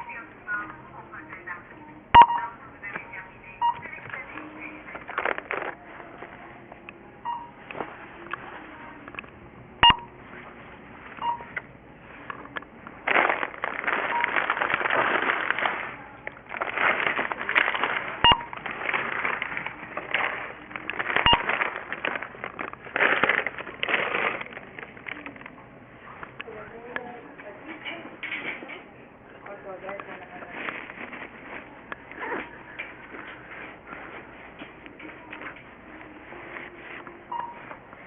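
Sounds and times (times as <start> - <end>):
checkout scanner beeping: 2.1 - 6.2, 7.1 - 9.1, 9.8 - 11.7, 13.8 - 14.7, 15.7 - 25.4, 34.9 - 37.9
rustling noise: 3.8 - 9.3, 10.0 - 26.4, 29.5 - 38.0.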